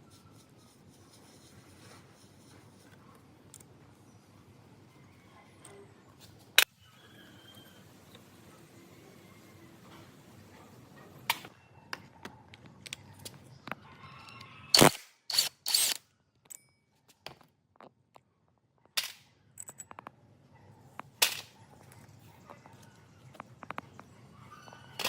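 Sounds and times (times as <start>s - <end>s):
metal tools clanking on metal: 15.7s - 16.9s.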